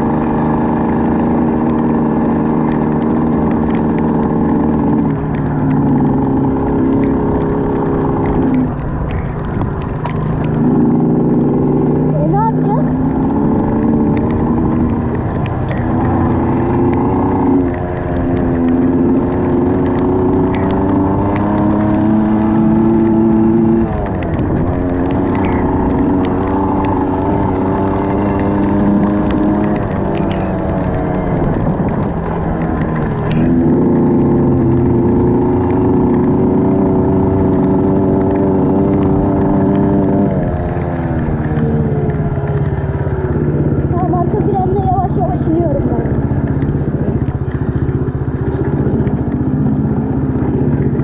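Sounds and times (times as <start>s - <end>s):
vehicle engine running: 0.0s - 51.0s.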